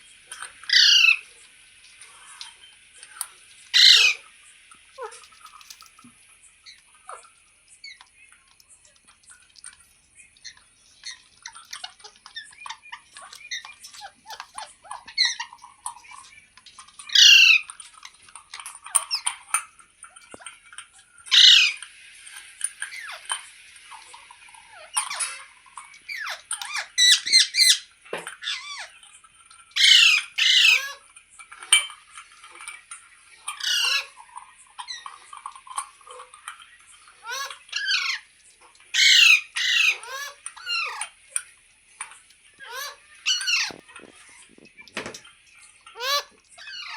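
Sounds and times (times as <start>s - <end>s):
parakeet chattering calls: 0.6s - 1.3s, 3.7s - 4.4s, 10.2s - 16.3s, 17.0s - 19.6s, 21.3s - 21.8s, 22.8s - 23.4s, 24.6s - 29.0s, 29.8s - 31.0s, 33.5s - 35.4s, 37.1s - 38.3s, 38.9s - 41.2s, 42.6s - 44.4s, 45.8s - 46.9s
parakeet screeching: 0.6s - 1.3s, 3.7s - 4.3s, 10.4s - 15.9s, 17.0s - 19.4s, 21.3s - 21.8s, 22.8s - 23.4s, 24.6s - 29.0s, 29.8s - 31.0s, 33.5s - 34.2s, 37.1s - 38.3s, 38.9s - 41.2s, 42.6s - 44.4s, 45.9s - 46.9s.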